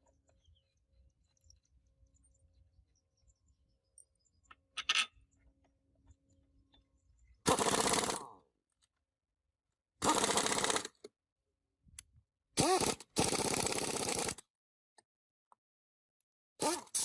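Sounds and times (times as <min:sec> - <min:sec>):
power tool motor bursts: 0:07.5 - 0:08.3, 0:10.0 - 0:11.0, 0:12.6 - 0:14.4.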